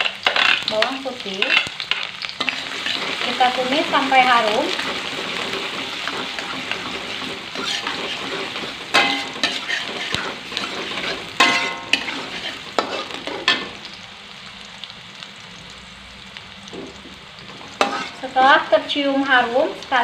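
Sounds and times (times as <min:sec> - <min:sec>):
spatula clanging on wok: 0:00.0 - 0:03.4, 0:04.7 - 0:13.8, 0:17.8 - 0:18.3
metal spatula scraping wok: 0:00.0 - 0:13.8, 0:17.5 - 0:18.5
shallots sizzling in hot oil: 0:00.0 - 0:20.0.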